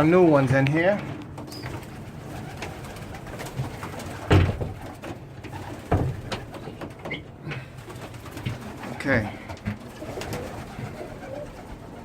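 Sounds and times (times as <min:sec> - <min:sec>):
pigeons cooing: 0:01.5 - 0:12.0
loud thumps: 0:03.6 - 0:06.6.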